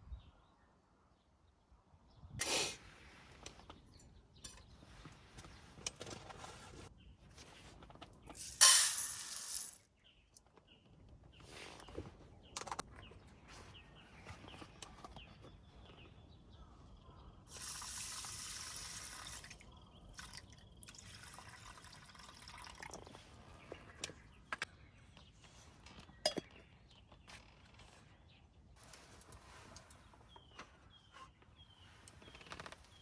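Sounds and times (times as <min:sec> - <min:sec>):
small clicks and knocks: 0:12.4 - 0:13.1
liquid pouring and dripping: 0:17.5 - 0:23.2.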